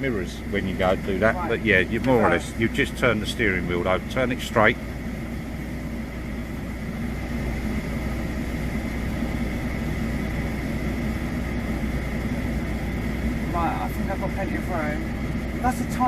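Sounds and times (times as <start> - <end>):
diesel truck engine reversing: 0.0 - 16.0.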